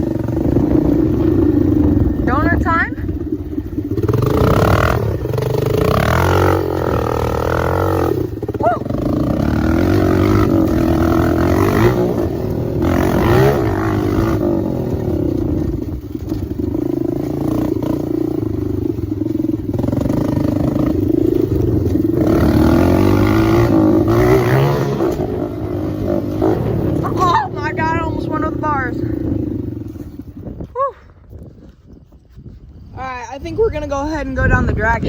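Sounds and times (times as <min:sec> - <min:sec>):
dirt bike engine revving: 0:00.0 - 0:30.6.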